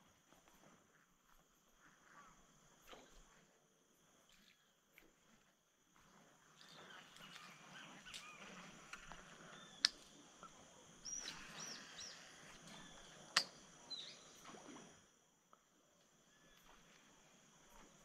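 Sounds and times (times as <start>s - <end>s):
small birds chirping: 6.5s - 14.4s.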